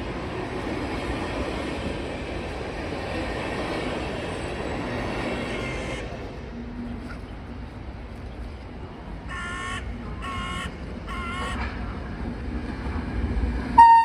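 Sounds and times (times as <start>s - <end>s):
crow cawing: 9.3s - 11.6s.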